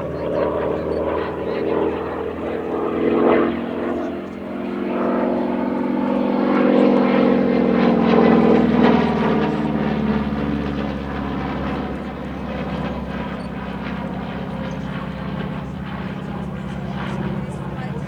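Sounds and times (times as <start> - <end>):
propeller plane engine passing by: 0.0 - 18.0.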